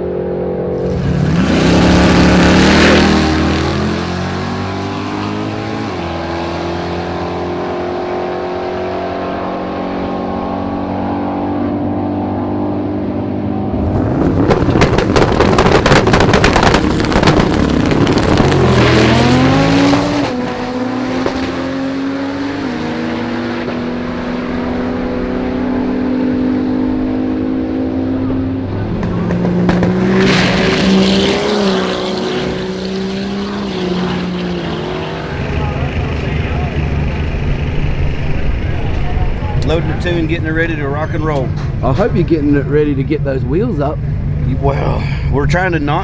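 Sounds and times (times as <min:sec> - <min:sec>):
race car engine revving crackling: 0:00.8 - 0:06.5, 0:13.4 - 0:26.0, 0:28.6 - 0:43.5
race car engine idling: 0:35.2 - 0:44.4.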